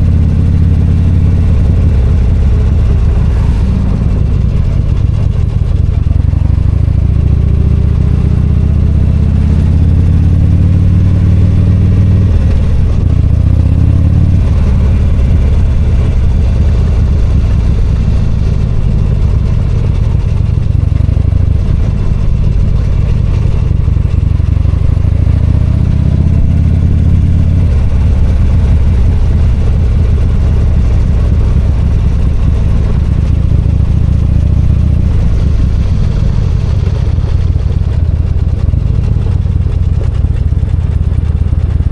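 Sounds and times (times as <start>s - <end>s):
motorcycle engine accelerating: 0.0s - 41.9s
road and wind rush: 0.0s - 41.9s.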